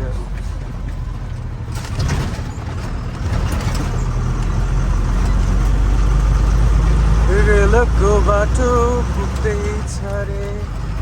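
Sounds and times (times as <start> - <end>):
road noise: 0.0 - 11.0
truck engine drone: 0.0 - 11.0
knocks and rattles: 0.3 - 7.0.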